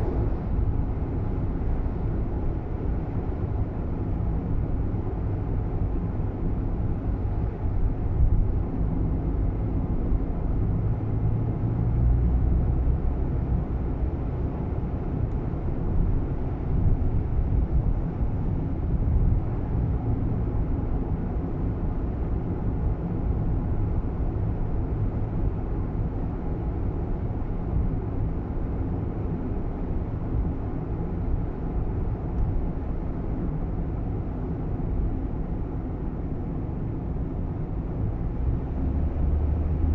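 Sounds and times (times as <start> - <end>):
car cabin road and engine drone: 0.0 - 39.9.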